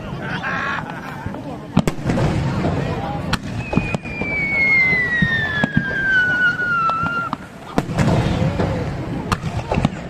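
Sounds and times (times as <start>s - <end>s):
firework shells bursting: 1.7s - 10.0s
firework whistle falling in pitch: 3.4s - 7.5s.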